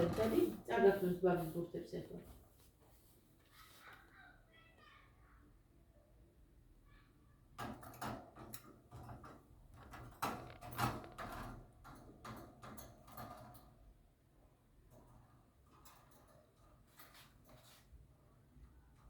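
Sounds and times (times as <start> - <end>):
clicks knocks and rattles: 7.6 - 13.8.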